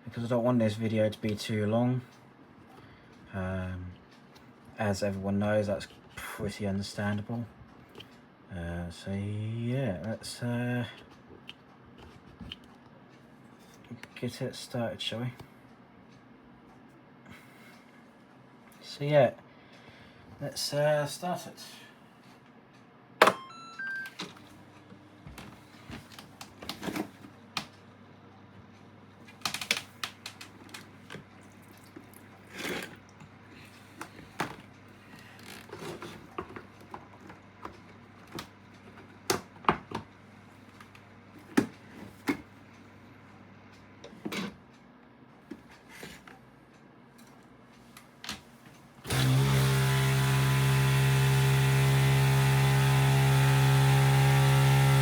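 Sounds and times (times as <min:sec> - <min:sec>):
water pump buzzing hum: 0:29.5 - 0:40.0, 0:49.0 - 0:55.0.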